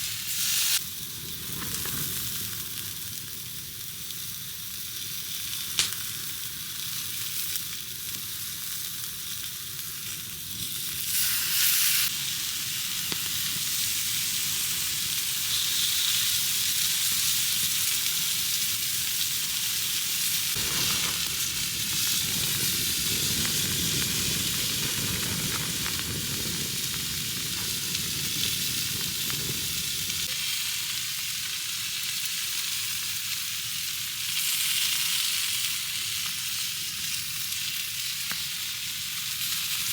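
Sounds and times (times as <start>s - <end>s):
meat sizzling in a pan: 0.0s - 39.9s.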